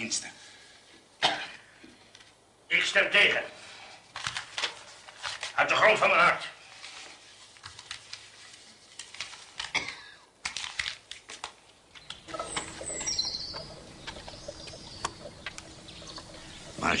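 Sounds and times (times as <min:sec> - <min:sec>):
faint steady hum: 0:11.7 - 0:17.0
birds chirping: 0:11.9 - 0:17.0.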